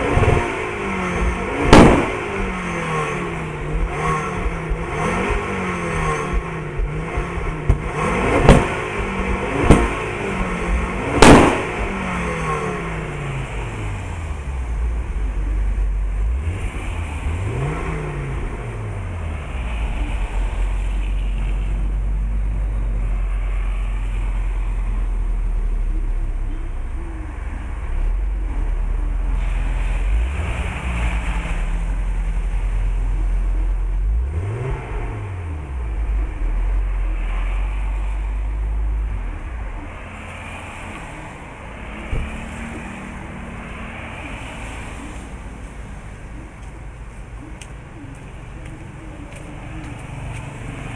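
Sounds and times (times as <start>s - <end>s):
loud exhaust cracks: 0.0s - 13.7s
car engine idling: 0.0s - 50.9s
car engine revving: 0.0s - 50.9s.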